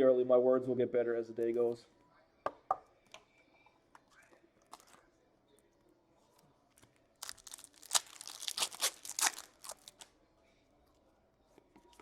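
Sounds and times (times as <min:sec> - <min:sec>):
card pack wrapper tearing: 0:07.2 - 0:10.1.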